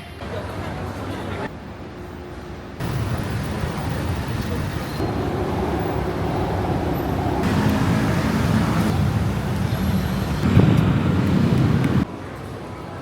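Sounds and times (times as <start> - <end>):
road rumble: 0.5 - 13.0
vehicle engines running: 2.8 - 12.1.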